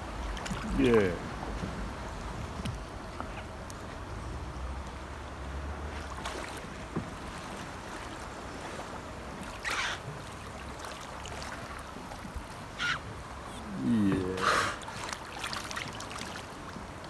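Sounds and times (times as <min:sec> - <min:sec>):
water moving: 0:05.6 - 0:17.0.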